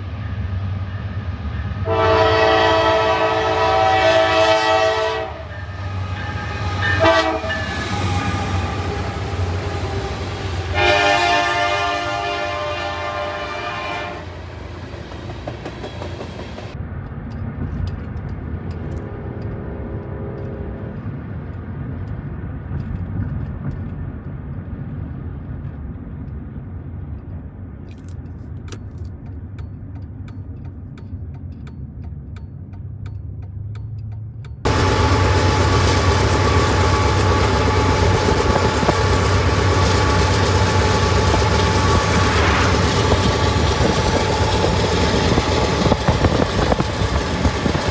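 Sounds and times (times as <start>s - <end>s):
diesel locomotive running close by: 0.0s - 27.8s, 34.4s - 47.9s
low rumble of a train: 0.0s - 47.9s
train horn blast: 1.8s - 14.6s, 34.7s - 46.4s.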